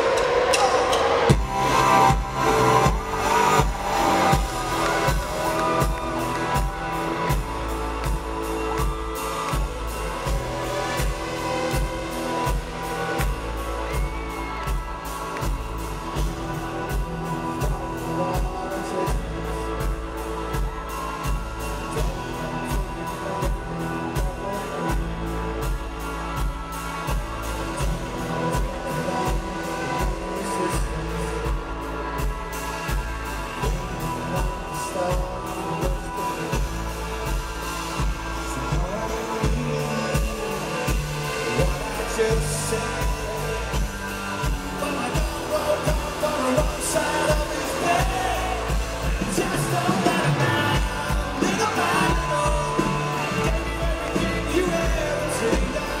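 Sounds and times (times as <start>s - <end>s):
amplified guitars: 0.0s - 56.0s
steady drum beat: 0.0s - 56.0s.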